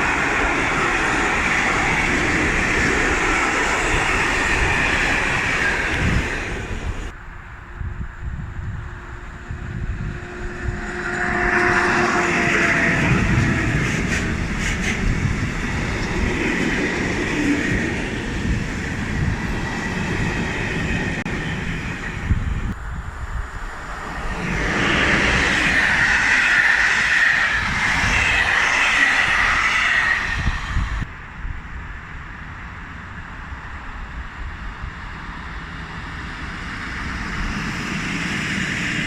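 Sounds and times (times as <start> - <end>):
train wheels rumbling on track: 0.0 - 7.3, 8.3 - 39.0
wheels squealing: 24.0 - 31.1.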